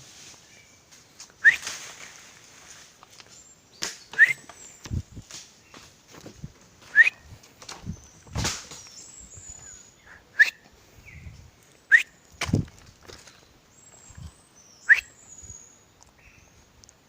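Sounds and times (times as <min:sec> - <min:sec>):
person whistling bird calls: 0:01.4 - 0:01.8, 0:04.1 - 0:04.6, 0:06.9 - 0:07.3, 0:09.5 - 0:10.6, 0:11.9 - 0:12.2, 0:14.8 - 0:15.2.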